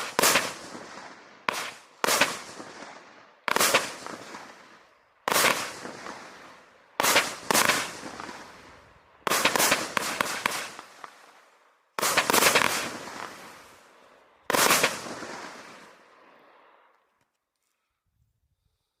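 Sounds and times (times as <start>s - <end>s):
firework bangs: 0.0s - 16.6s.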